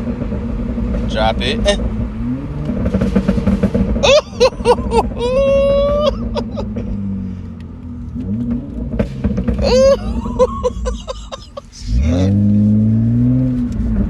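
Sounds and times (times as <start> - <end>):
exhaust pops and crackles: 0.0 - 11.0
car engine revving: 0.0 - 14.0.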